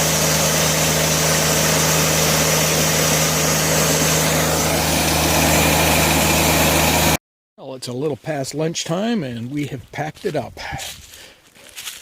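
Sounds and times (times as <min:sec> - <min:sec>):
sawmill engine running: 0:00.0 - 0:07.2.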